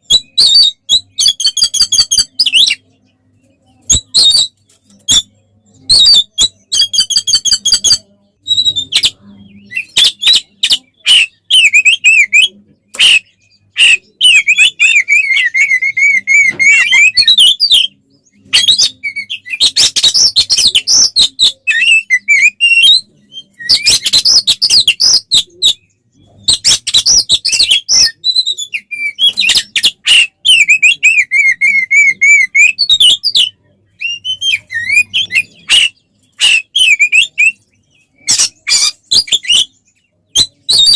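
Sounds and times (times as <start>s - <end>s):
bird whistled song: 0.0s - 3.0s, 3.8s - 40.9s
bird harsh rasping chatter: 18.6s - 39.8s.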